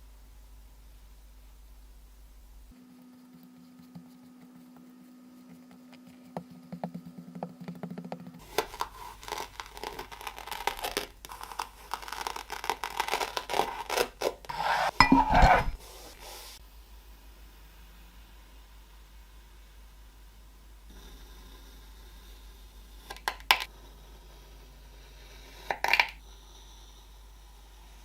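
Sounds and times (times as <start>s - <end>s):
kinetic sand scratching: 8.4s - 16.6s.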